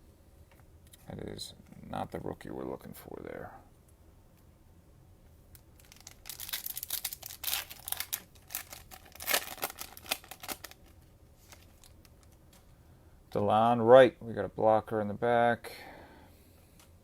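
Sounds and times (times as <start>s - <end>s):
cellophane wrapper crinkling: 5.5s - 12.6s.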